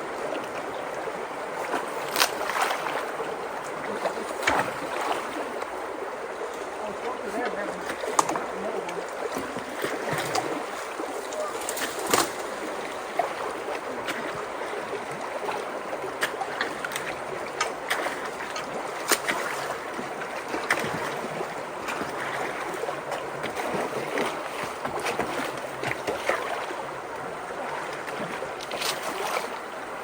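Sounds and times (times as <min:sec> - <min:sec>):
creek water rushing: 0:00.0 - 0:30.0
sticks knocking and splashing: 0:04.0 - 0:05.3, 0:07.4 - 0:10.6, 0:11.3 - 0:12.5, 0:16.2 - 0:19.8.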